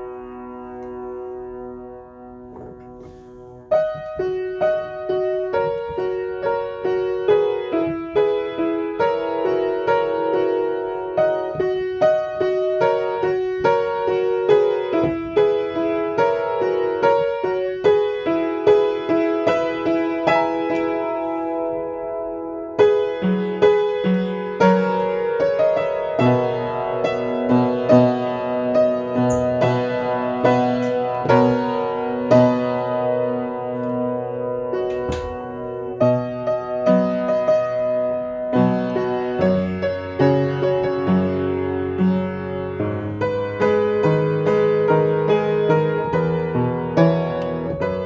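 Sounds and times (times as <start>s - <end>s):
slow solo piano piece: 0.0s - 48.0s.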